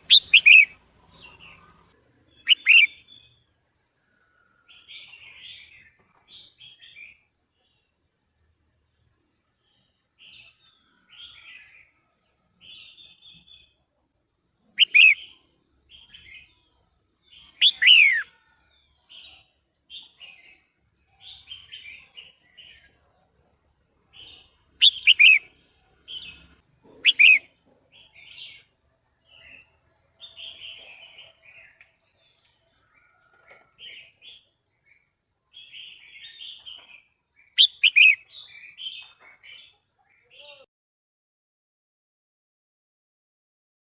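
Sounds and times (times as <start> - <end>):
bird chattering: 0.0 - 0.8, 2.4 - 3.0, 14.8 - 15.2, 17.6 - 18.3, 24.8 - 25.5, 27.0 - 27.5, 37.6 - 38.2
sharp descending bird calls: 0.0 - 0.8, 2.4 - 3.0, 14.8 - 15.2, 17.5 - 18.4, 24.8 - 25.5, 27.0 - 27.5, 37.6 - 38.2.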